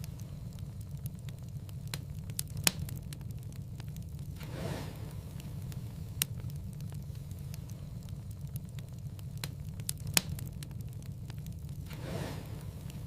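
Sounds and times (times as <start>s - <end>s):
whoosh of flame: 0.0s - 13.0s
wood fire crackling: 0.0s - 13.0s
loud pop of fire: 4.2s - 6.9s, 11.6s - 13.0s.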